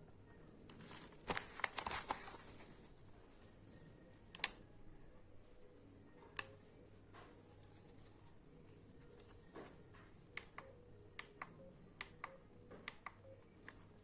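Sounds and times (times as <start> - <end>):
small clicks and rustling: 0.7 - 2.9.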